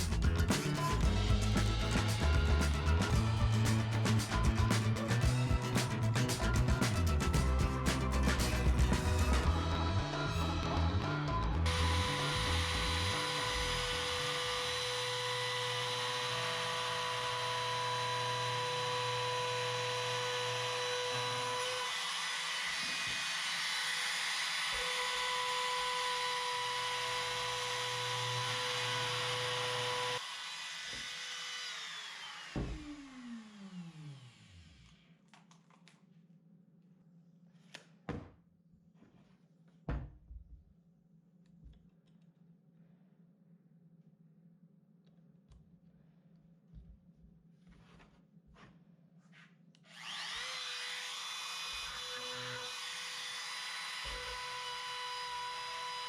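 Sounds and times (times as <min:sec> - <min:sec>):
electric power sander running: 0:11.6 - 0:34.9, 0:49.9 - 0:56.0.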